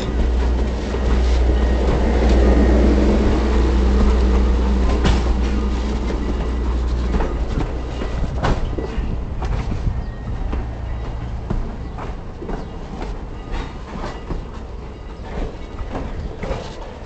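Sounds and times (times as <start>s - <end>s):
train rumbling on track: 0.0s - 17.0s.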